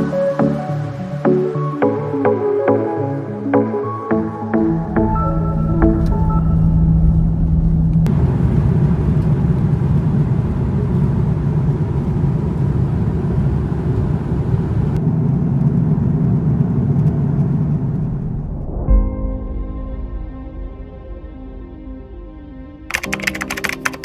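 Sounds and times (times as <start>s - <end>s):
vehicle rumbling: 4.7s - 18.8s.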